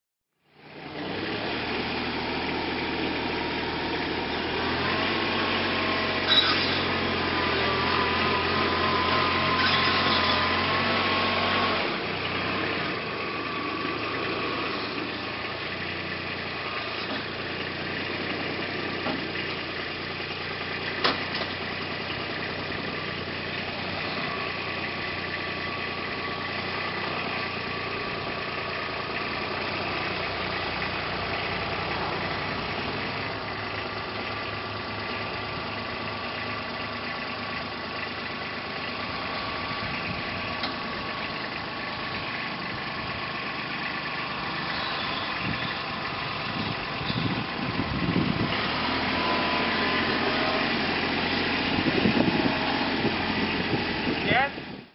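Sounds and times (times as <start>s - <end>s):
vehicle engine idling: 0.4s - 54.9s.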